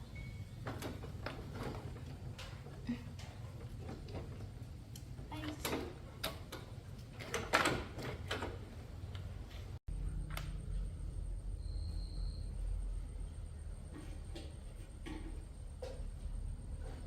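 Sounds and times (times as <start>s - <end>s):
low steady hum: 9.8s - 17.0s.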